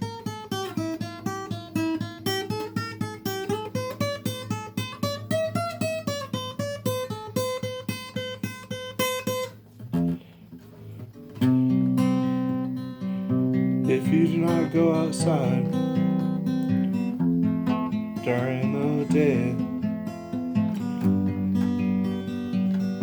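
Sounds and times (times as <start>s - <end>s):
acoustic guitar picking a melody: 0.0s - 23.0s.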